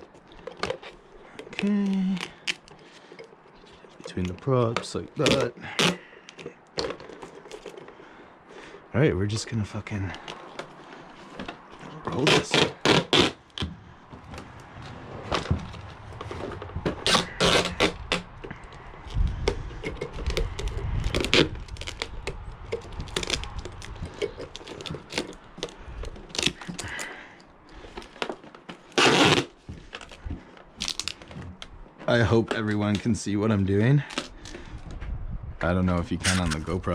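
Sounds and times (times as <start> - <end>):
knocks and scrapes of handling: 0.0 - 33.2
duct tape ripping: 0.6 - 2.7, 5.1 - 6.5, 11.4 - 13.7, 15.7 - 27.1, 27.8 - 30.2, 30.8 - 31.6, 34.0 - 34.6, 36.2 - 36.8.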